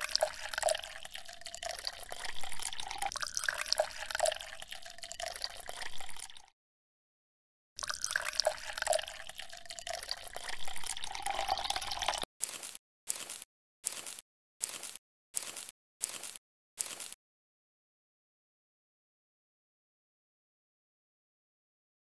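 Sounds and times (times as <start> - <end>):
water trickling and dripping: 0.0 - 6.5, 7.8 - 12.3.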